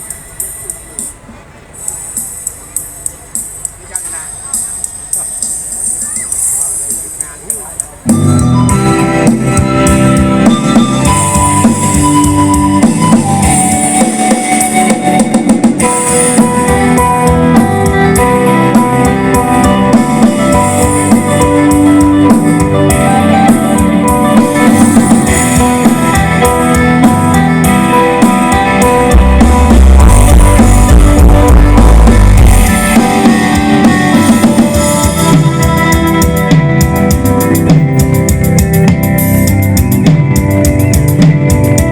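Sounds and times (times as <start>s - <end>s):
drum kit: 0.0s - 41.9s
keyboard: 0.0s - 41.9s
guitar: 4.6s - 41.9s.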